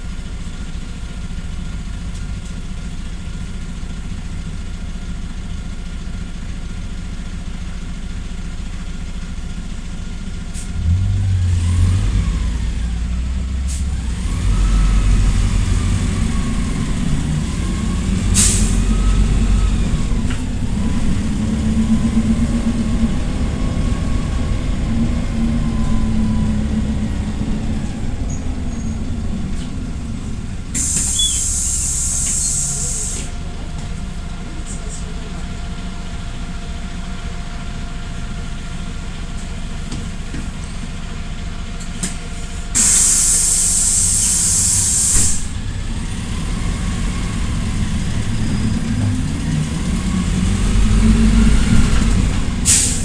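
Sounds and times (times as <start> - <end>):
bus engine revving: 10.3 - 53.0
air brake hiss: 10.5 - 10.9, 13.6 - 14.0, 14.6 - 21.3, 24.1 - 33.4, 42.0 - 45.7, 51.9 - 53.0.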